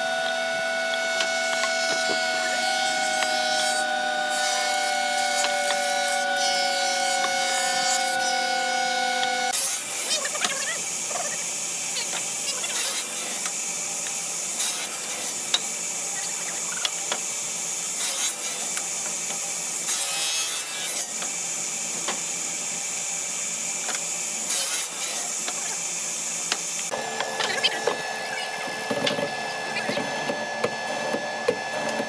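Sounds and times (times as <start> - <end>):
hand tool rasping wood: 1.2 - 9.6.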